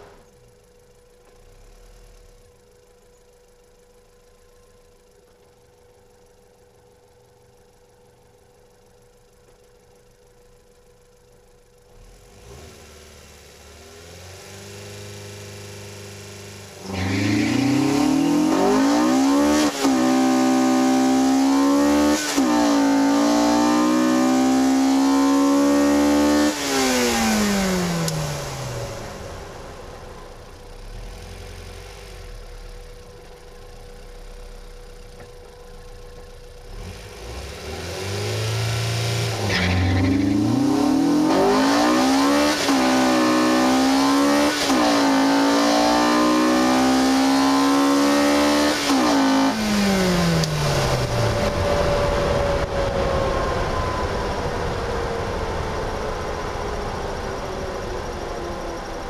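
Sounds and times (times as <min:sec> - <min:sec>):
car engine revving through gears: 0:12.0 - 0:30.2, 0:36.6 - 0:56.3.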